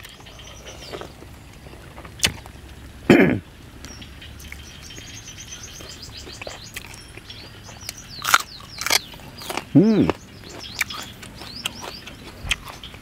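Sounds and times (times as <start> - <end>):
close-up chewing of crispy food: 0.0 - 3.0, 5.8 - 13.0
birds chirping: 0.0 - 13.0.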